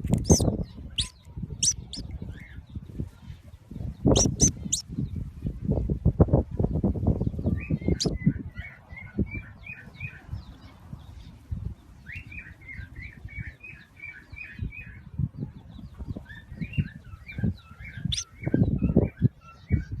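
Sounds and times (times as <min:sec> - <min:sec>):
baby bird cheeping: 0:00.0 - 0:02.5, 0:04.0 - 0:04.9, 0:07.6 - 0:08.3, 0:16.8 - 0:20.0.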